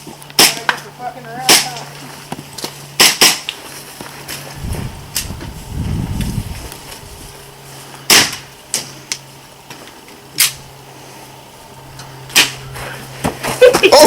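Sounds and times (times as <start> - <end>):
airsoft gun shots: 3.0 - 3.5, 8.1 - 8.4.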